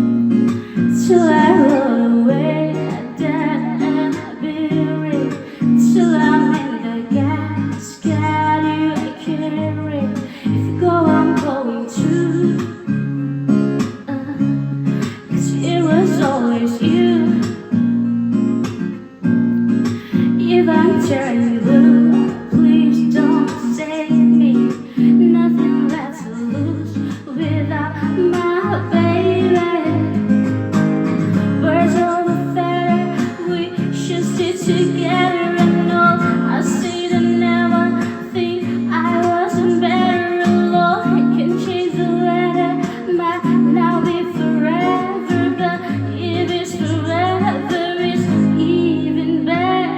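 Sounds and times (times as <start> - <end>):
acoustic guitar strumming: 0.0 - 49.9
person singing wordless melody: 0.8 - 12.9, 14.0 - 17.5, 20.0 - 30.2.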